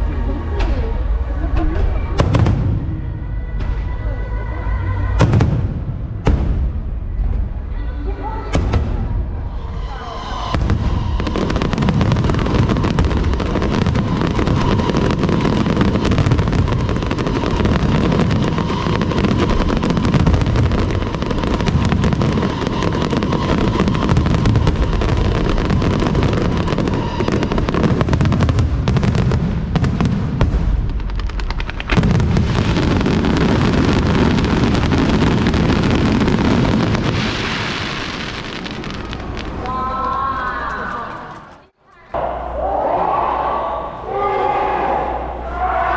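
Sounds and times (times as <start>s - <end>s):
fireworks booming and banging: 0.6s - 4.0s, 5.1s - 7.7s, 8.5s - 41.6s
fireworks crackling hiss: 9.4s - 40.3s.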